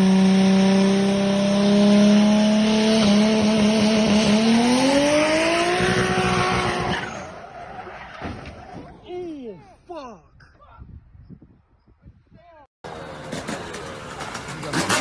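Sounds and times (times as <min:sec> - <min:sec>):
car engine at high revs: 0:00.0 - 0:07.4
road and wind noise: 0:00.0 - 0:15.0.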